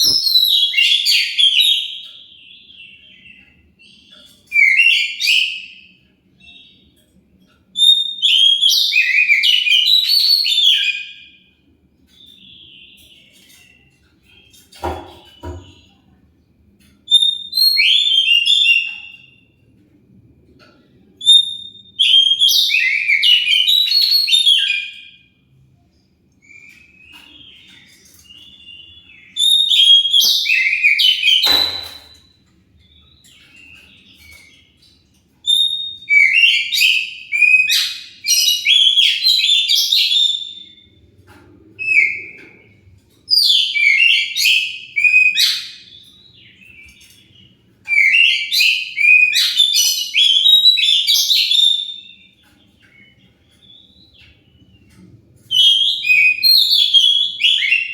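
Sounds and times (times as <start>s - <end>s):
songbird singing: 0.0s - 11.2s, 26.4s - 41.0s, 43.4s - 57.9s.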